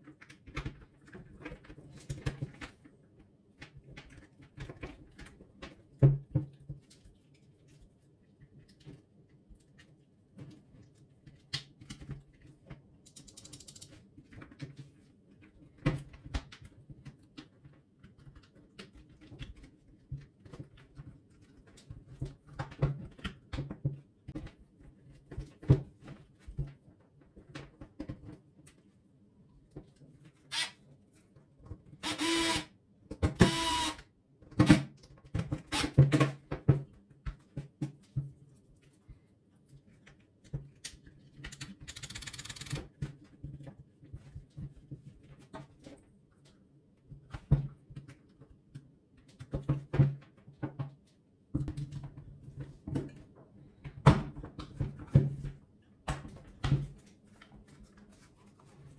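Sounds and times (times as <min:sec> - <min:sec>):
plastic and metal parts clicking: 0:13.1 - 0:14.0.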